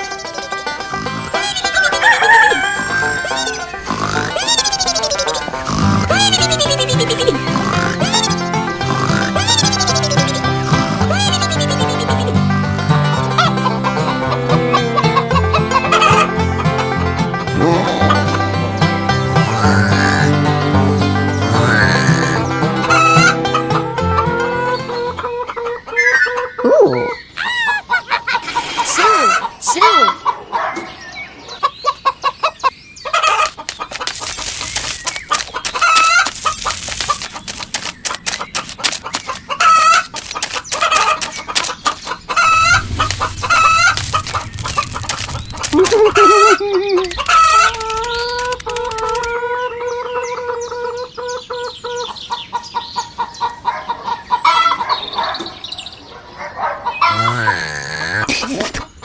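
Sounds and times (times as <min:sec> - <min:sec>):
chickens clucking: 0:00.0 - 0:55.5
rooster crowing: 0:01.6 - 0:03.9.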